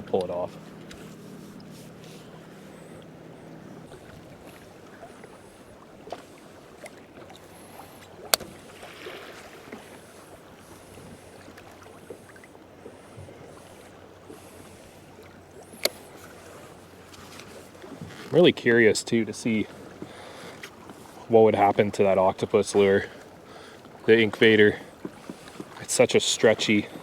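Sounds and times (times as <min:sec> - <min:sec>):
water lapping against hull: 0:00.0 - 0:27.0.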